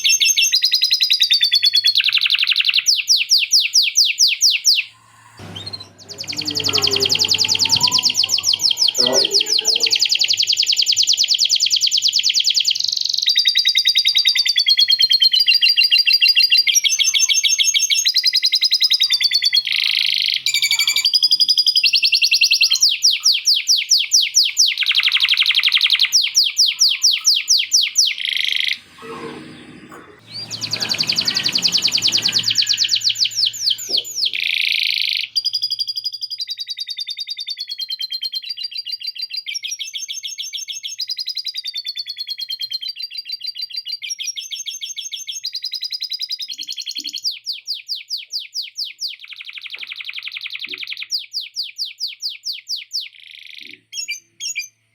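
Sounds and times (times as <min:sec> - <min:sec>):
canary singing trills: 0:04.6 - 0:16.7, 0:18.9 - 0:29.1, 0:30.1 - 0:35.9.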